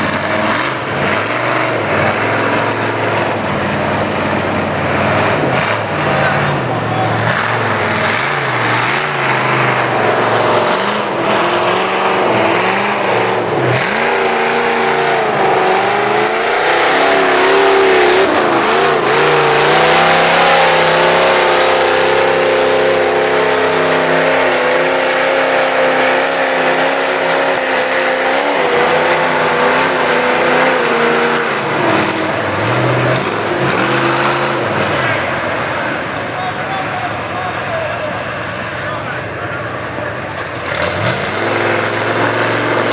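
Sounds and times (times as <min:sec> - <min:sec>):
truck engine revving: 0:00.0 - 0:42.9.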